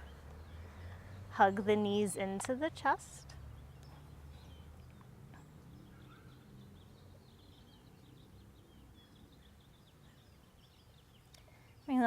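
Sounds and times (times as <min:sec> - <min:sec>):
faint bird chirping: 0:03.2 - 0:12.0.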